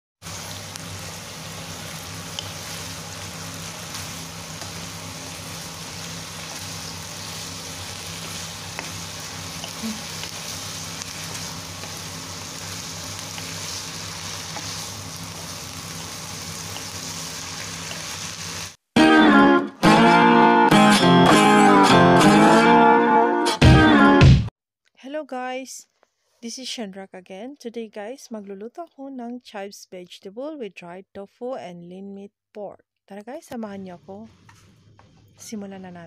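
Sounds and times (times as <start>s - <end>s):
food sizzling in a pan: 0.2s - 18.8s.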